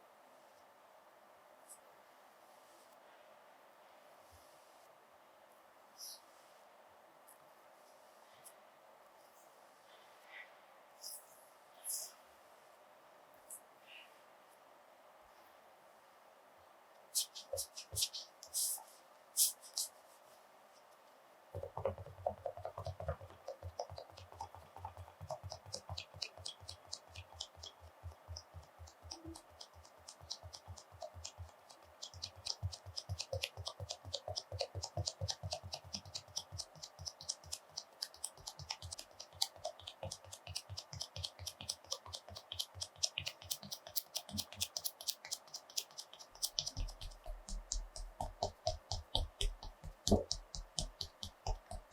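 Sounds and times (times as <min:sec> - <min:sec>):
light taps and clicks: 0:21.6 - 0:51.9.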